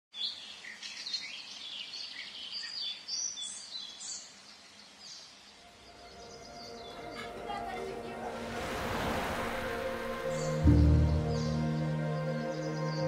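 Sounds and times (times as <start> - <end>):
birds chirping and singing: 0.2 - 13.0.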